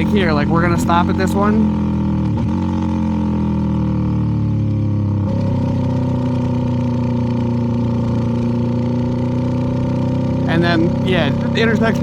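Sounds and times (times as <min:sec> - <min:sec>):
motorcycle engine slowing to idle: 0:01.8 - 0:10.4.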